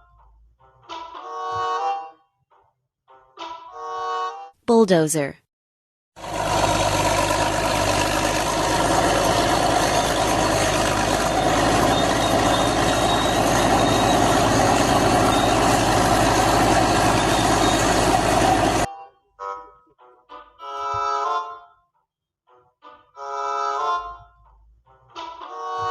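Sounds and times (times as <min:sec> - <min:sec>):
bulldozer diesel engine running: 0:06.2 - 0:18.9.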